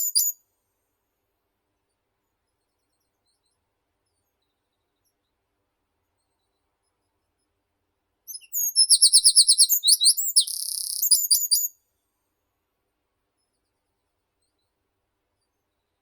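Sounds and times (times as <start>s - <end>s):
songbird singing: 0.0s - 0.4s, 8.3s - 11.7s.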